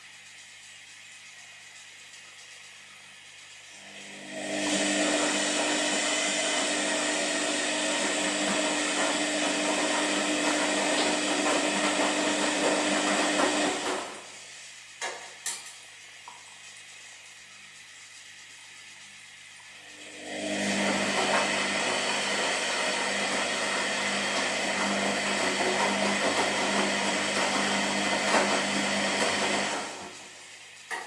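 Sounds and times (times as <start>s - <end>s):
washing machine drum swishing: 23.0s - 30.3s.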